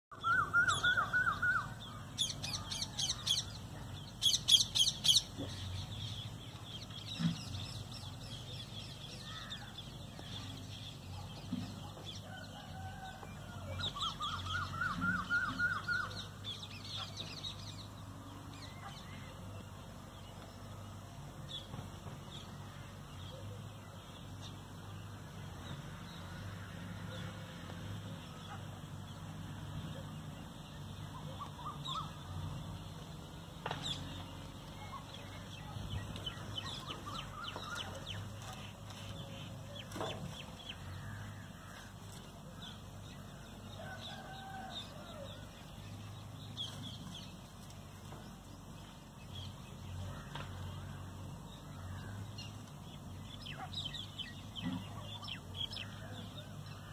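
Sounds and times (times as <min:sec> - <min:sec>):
birds chattering: 0:28.2 - 0:44.7, 0:45.4 - 0:56.9.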